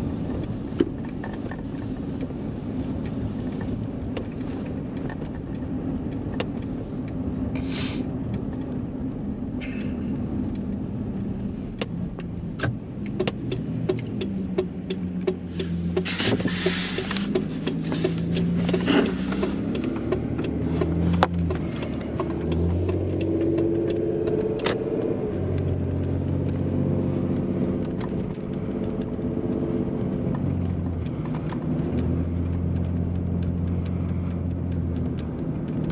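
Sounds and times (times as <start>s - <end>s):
vehicle engine running: 0.0s - 35.9s
sharp clicks: 9.7s - 26.7s, 27.6s - 35.9s.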